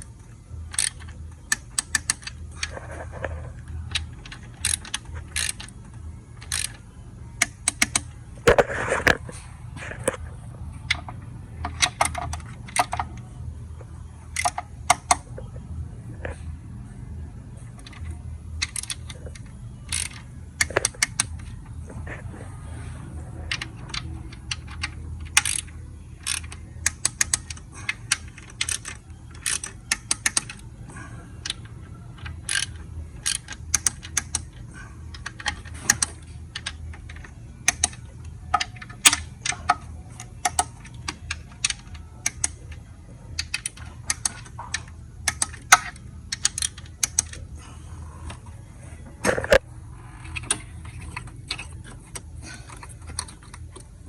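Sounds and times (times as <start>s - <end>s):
steady low hum: 0.0s - 54.0s
ratchet wrench clicking: 0.7s - 2.7s, 3.9s - 6.8s, 7.4s - 8.6s, 17.8s - 21.6s, 23.5s - 30.6s, 31.4s - 42.6s, 43.4s - 47.4s.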